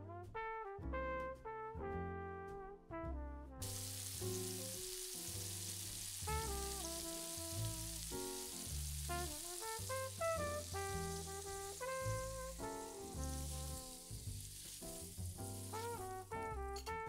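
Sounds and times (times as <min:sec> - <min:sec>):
background music: 0:00.0 - 0:17.0
food sizzling in hot oil: 0:03.6 - 0:16.9.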